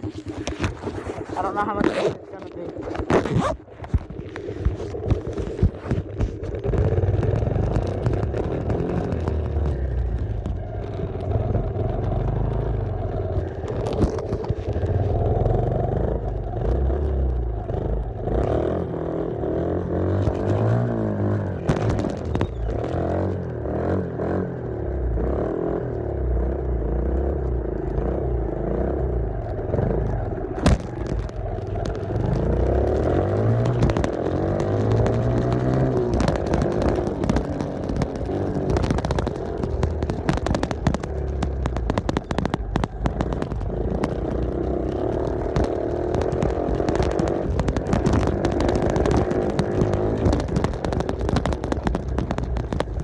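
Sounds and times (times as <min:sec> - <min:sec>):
small off-road engine revving: 0:06.1 - 0:53.0
machine clattering over bumps: 0:30.1 - 0:53.0.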